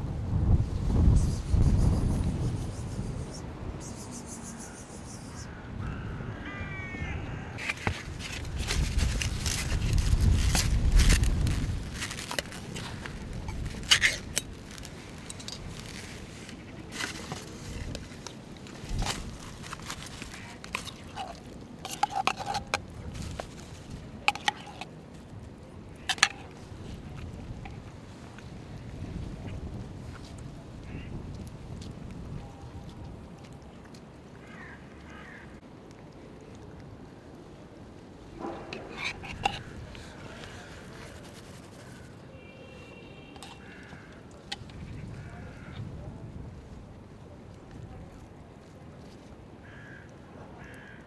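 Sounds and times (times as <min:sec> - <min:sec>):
wind: 0:00.0 - 0:51.0
rustling: 0:07.6 - 0:28.6, 0:38.4 - 0:42.3
cat food clinking against a dish: 0:11.0 - 0:24.9.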